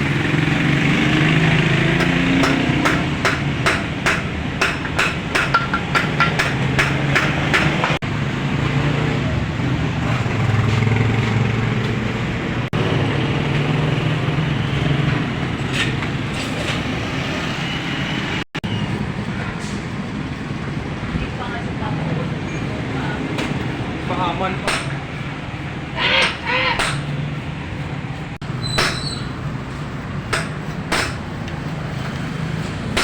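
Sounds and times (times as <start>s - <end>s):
sharp ringing knocks: 2.0s - 8.0s, 24.6s - 25.1s, 26.2s - 27.2s, 28.6s - 29.3s, 30.3s - 31.3s.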